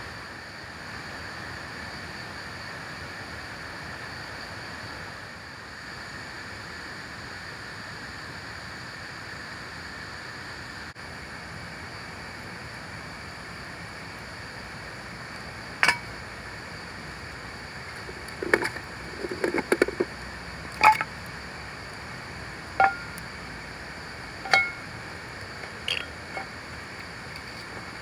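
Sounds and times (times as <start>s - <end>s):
steady background hiss: 10.6s - 28.0s
hard objects clinking: 15.8s - 16.2s, 17.9s - 21.3s, 22.7s - 23.3s, 24.4s - 28.0s.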